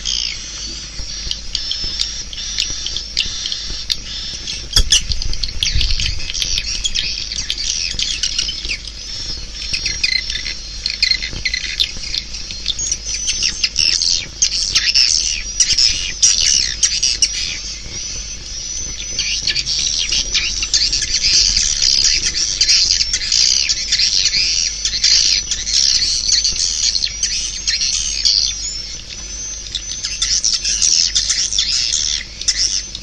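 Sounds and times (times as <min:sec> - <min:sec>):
swiftlets chirping and twittering: 0:00.0 - 0:33.0.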